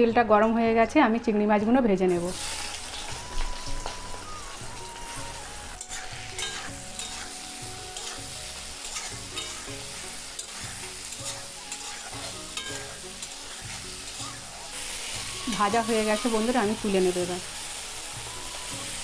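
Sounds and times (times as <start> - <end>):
prawns sizzling in hot oil: 2.0 - 19.0
metal spatula scraping a pan: 5.8 - 16.5.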